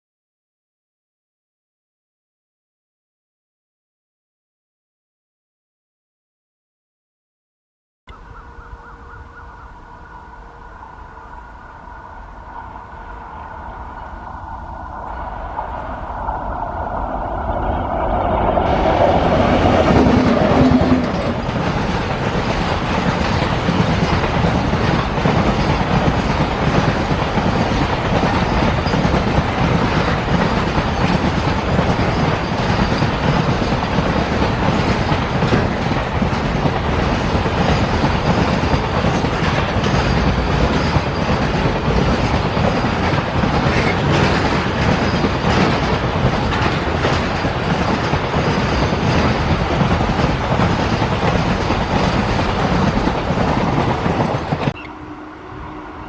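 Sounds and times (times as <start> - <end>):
electric locomotive hum: 8.1 - 56.0
wheels clattering over rail joints: 15.1 - 54.8.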